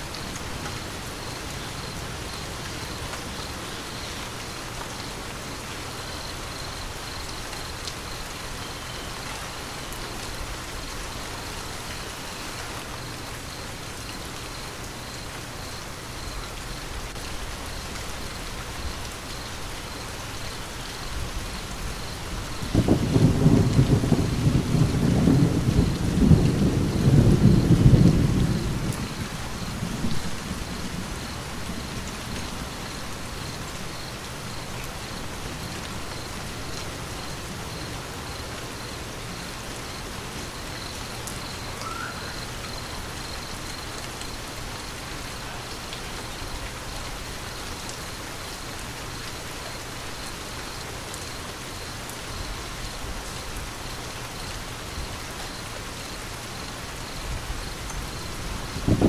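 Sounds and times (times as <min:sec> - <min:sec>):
steady rain: 0:00.0 - 0:59.0
thunder rumbling: 0:21.1 - 0:37.6, 0:57.2 - 0:59.0.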